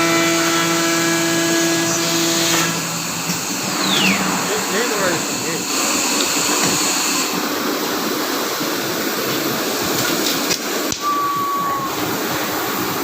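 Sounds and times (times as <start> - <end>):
cutting machine running: 0.0 - 7.4.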